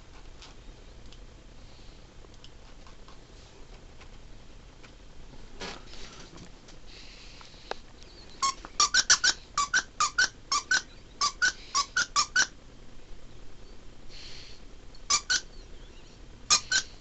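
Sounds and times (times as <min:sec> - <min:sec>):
squeaky dog toy squeaking: 0:08.4 - 0:12.5, 0:15.1 - 0:15.6, 0:16.5 - 0:17.0.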